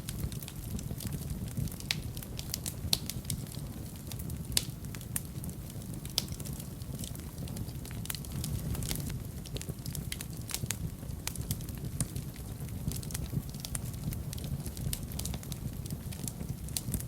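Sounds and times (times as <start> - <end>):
fire crackling and popping: 0.0 - 17.0
fire rumbling: 0.0 - 17.0.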